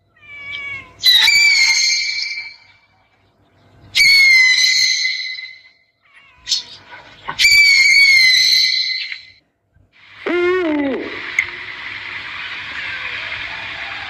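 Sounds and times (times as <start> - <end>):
owl screeching: 0.2 - 2.8, 3.9 - 9.4.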